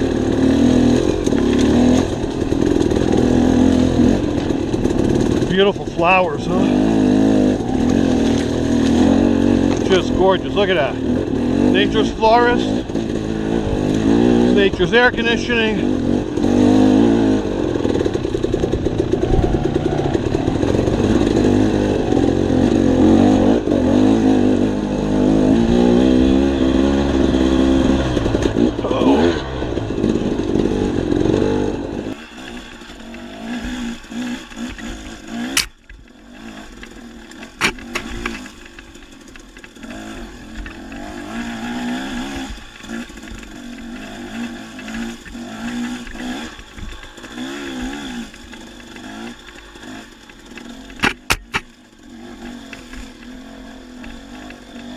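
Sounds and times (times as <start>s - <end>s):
dirt bike engine running: 0.0s - 54.9s
sharp knocks: 51.0s - 51.8s.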